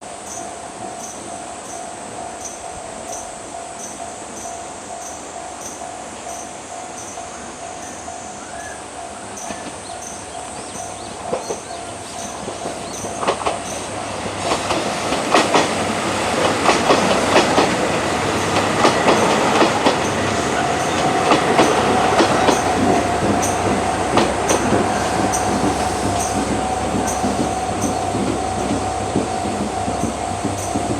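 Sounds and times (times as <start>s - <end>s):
train wheels clacking over rail joints: 9.4s - 30.9s.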